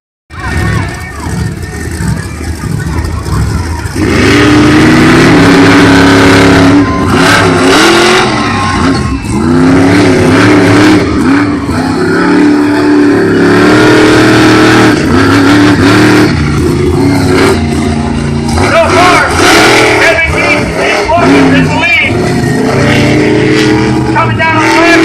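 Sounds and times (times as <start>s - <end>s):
monster truck engines revving: 0.3s - 25.0s.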